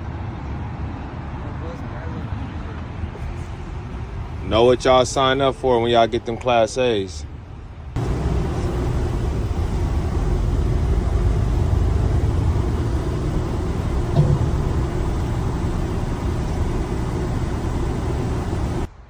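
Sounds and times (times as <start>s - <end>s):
heavy truck running: 3.2s - 18.9s
brief thump: 8.1s - 18.8s.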